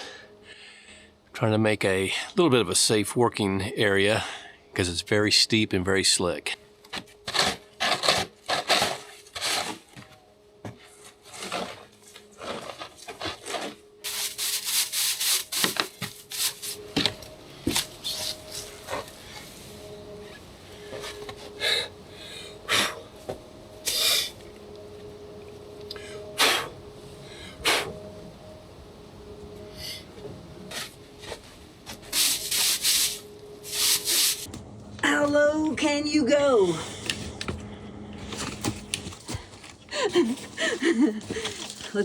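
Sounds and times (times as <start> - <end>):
shovel scraping snow: 7.2 - 9.9, 11.0 - 17.0, 30.7 - 34.5.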